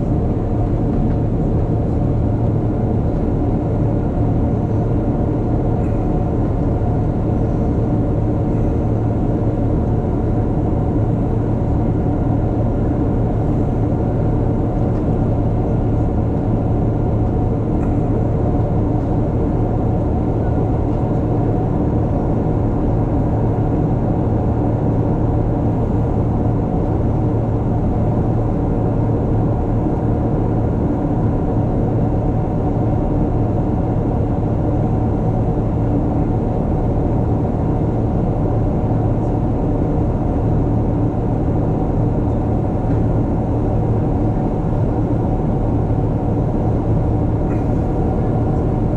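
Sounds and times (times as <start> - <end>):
low hum of jet engines: 0.0 - 48.9.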